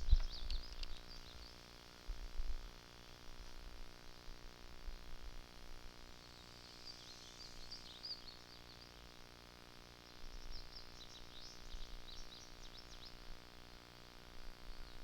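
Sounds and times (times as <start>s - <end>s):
small birds chirping: 0.0s - 1.6s, 6.7s - 9.1s, 10.1s - 13.3s.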